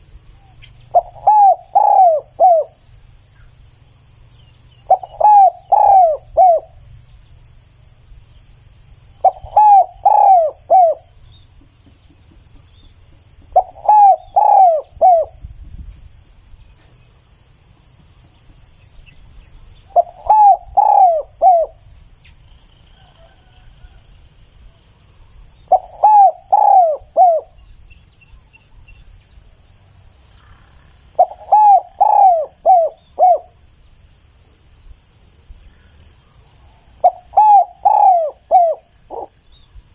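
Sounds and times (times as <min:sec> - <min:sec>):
high insect trill: 0:00.0 - 0:39.9
dove cooing: 0:00.9 - 0:02.8, 0:04.8 - 0:06.8, 0:09.2 - 0:12.7, 0:13.4 - 0:15.4, 0:19.9 - 0:21.8, 0:25.7 - 0:27.7, 0:30.4 - 0:33.6, 0:37.0 - 0:39.4.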